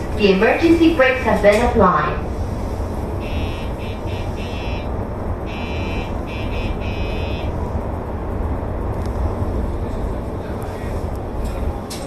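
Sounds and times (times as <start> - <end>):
train low rumble: 0.0 - 12.0
electronic alarm buzzer beeping: 3.2 - 4.9, 5.5 - 7.5.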